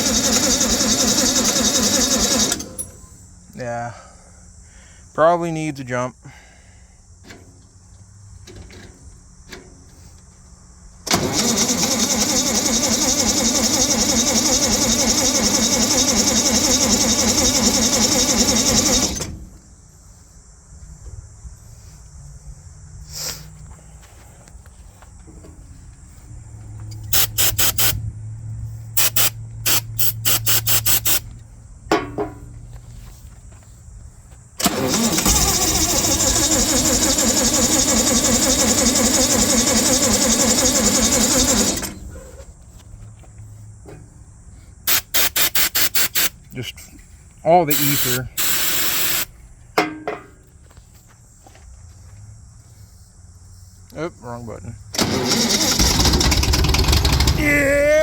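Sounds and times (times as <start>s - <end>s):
engine starter cranking: 0.0s - 3.4s, 11.0s - 19.6s, 26.9s - 28.0s, 29.0s - 31.3s, 34.6s - 42.4s, 44.9s - 46.4s, 47.7s - 49.3s, 54.8s - 58.0s.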